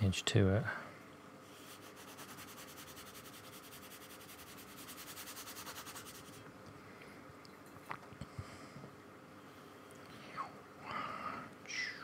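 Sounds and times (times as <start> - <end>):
paintbrush scrubbing across paper: 1.5 - 6.4.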